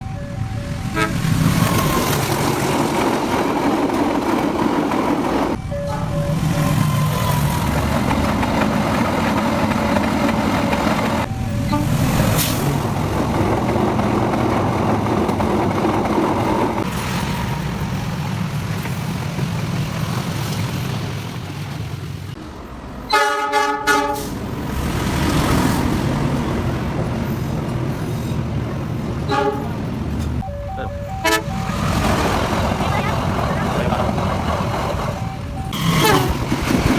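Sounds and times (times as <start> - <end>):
diesel locomotive engine running: 0.0 - 36.9
locomotive horn blasts: 0.8 - 1.3, 11.5 - 12.2, 23.1 - 24.4, 29.3 - 29.8, 30.4 - 31.8, 35.7 - 36.4.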